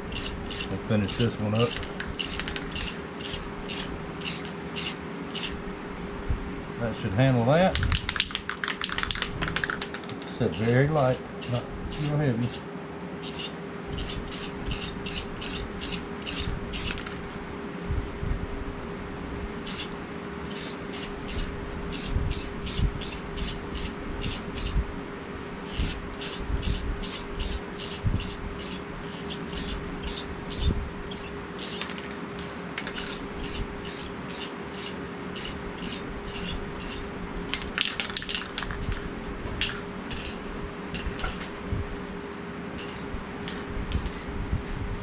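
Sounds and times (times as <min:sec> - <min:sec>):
aerosol can spraying in bursts: 0:00.1 - 0:05.6, 0:10.5 - 0:12.6, 0:13.2 - 0:17.0, 0:19.7 - 0:24.8, 0:25.7 - 0:31.9, 0:32.9 - 0:37.0.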